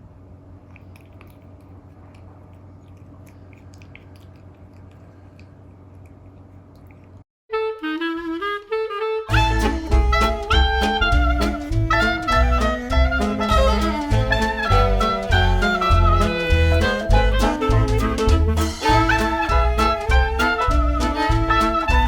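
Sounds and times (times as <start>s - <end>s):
steady low hum: 0.0s - 7.2s, 9.3s - 22.0s
cat chewing crunchy food: 0.6s - 7.2s
jazz music with saxophone: 7.5s - 22.0s.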